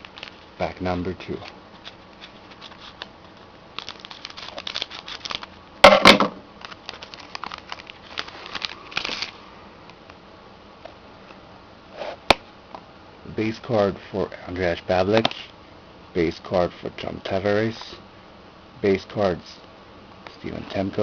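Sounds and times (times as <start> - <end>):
card pack wrapper crinkling: 0.0 - 5.6, 6.6 - 9.4
wrapper tearing rip: 3.7 - 5.6, 6.6 - 9.4.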